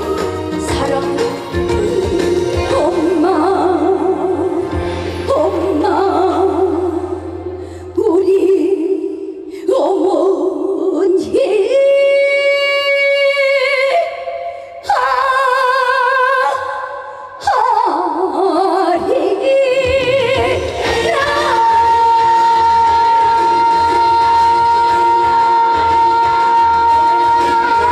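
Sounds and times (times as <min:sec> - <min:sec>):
backing band playing: 0:00.0 - 0:03.5, 0:20.0 - 0:27.9
woman singing with vibrato: 0:00.0 - 0:27.9.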